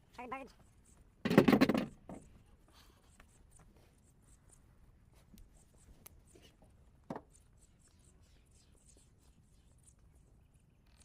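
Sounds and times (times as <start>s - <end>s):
faint scattered ticks: 2.4s - 11.0s.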